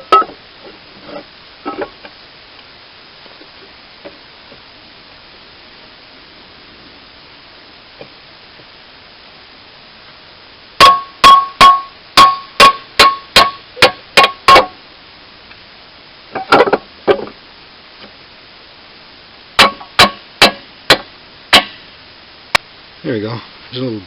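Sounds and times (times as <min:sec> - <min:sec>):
hammer striking steel: 0:10.8 - 0:14.8, 0:19.6 - 0:21.8.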